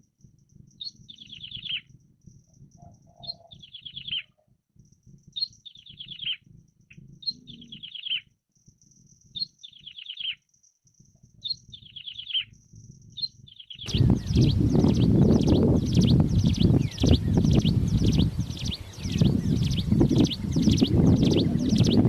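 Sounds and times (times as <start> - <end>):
bird singing falling notes: 0.7 - 1.9, 2.8 - 4.3, 5.4 - 8.2, 9.4 - 10.4, 11.4 - 12.5, 13.1 - 22.0
low background rumble: 13.9 - 22.0.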